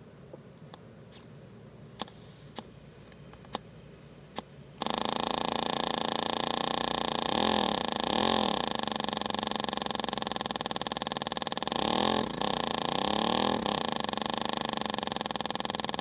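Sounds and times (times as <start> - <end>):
air engine buzzing rattle: 4.8 - 16.0.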